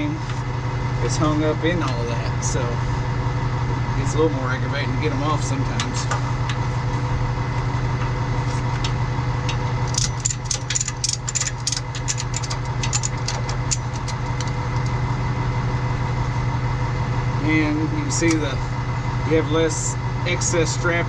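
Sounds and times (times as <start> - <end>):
truck engine idling: 0.0 - 21.0
sharp clicks and rattles: 7.9 - 15.0.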